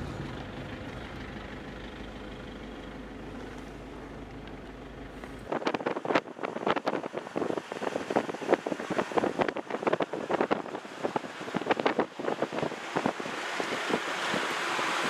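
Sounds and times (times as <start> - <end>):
wind gusts on microphone: 5.4 - 15.0.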